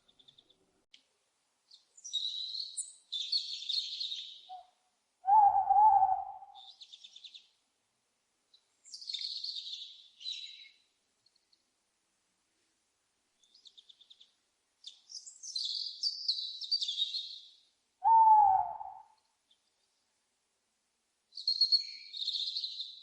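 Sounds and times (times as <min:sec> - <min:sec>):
owl hooting: 0:04.5 - 0:06.8, 0:18.0 - 0:19.2
owl screeching: 0:05.3 - 0:06.6, 0:18.0 - 0:19.1.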